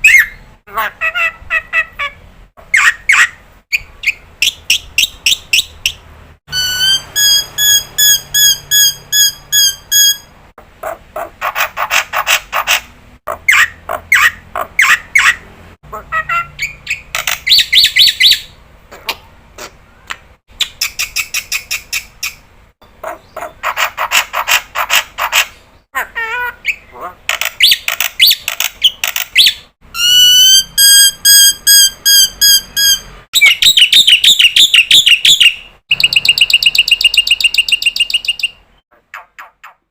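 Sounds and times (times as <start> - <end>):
clear piped bird whistles: 6.5 - 10.3, 29.4 - 38.6.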